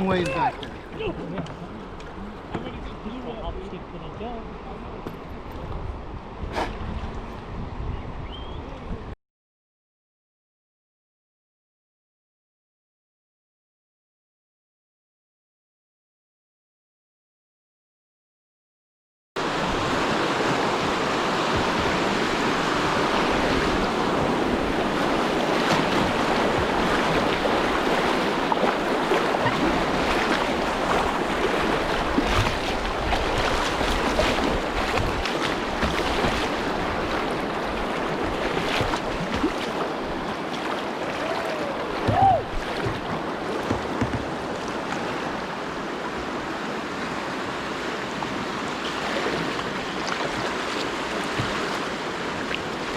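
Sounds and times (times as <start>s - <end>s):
water rushing around kayak: 0.0s - 7.8s, 19.4s - 52.9s
wind on microphone: 5.1s - 9.2s, 19.5s - 40.3s.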